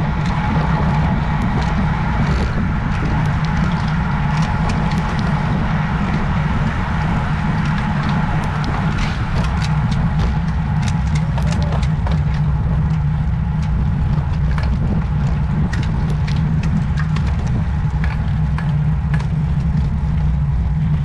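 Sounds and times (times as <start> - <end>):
wind buffeting microphone: 0.0 - 21.0
light clicks and ticks: 7.4 - 20.4.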